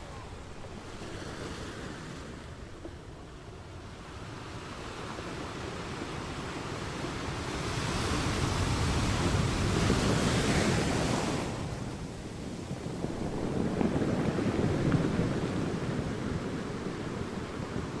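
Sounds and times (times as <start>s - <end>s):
ocean waves breaking on shore: 0.0s - 18.0s.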